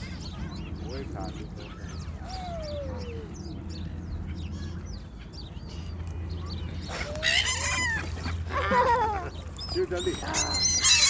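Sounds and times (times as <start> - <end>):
birds chirping: 0.0 - 11.0
drawn-out animal call: 7.0 - 11.0.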